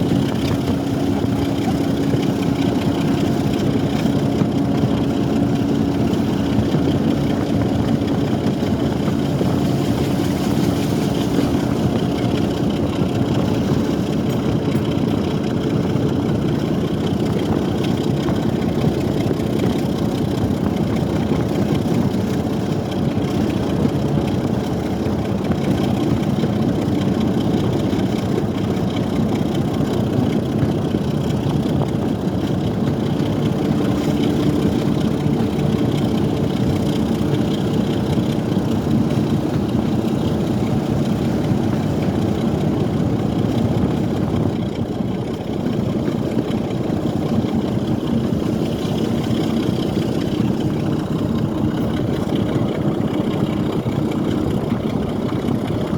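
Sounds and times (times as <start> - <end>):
diesel locomotive engine drone: 0.0 - 55.9
wind buffeting microphone: 0.0 - 55.9.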